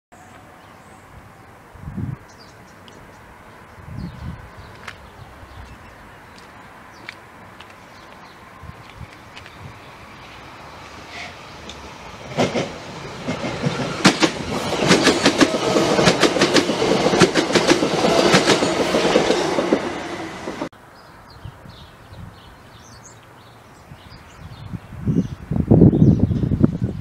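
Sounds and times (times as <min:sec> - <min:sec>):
train passing at speed: 0:00.2 - 0:20.7.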